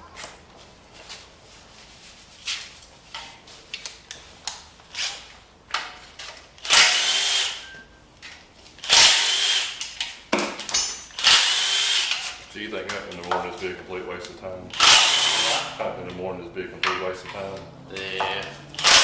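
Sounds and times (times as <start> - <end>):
power tool whirring: 6.6 - 7.7, 8.9 - 9.8, 11.2 - 12.4, 14.7 - 15.8, 17.6 - 19.0
tools clinking and knocking: 9.8 - 11.4, 16.8 - 19.0.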